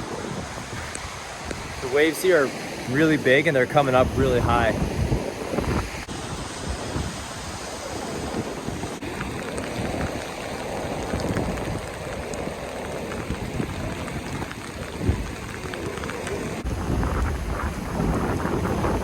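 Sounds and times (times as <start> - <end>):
wind buffeting microphone: 0.0 - 2.0, 4.0 - 19.0
heavy rain: 0.0 - 19.0
ocean waves washing up beach: 0.0 - 19.0.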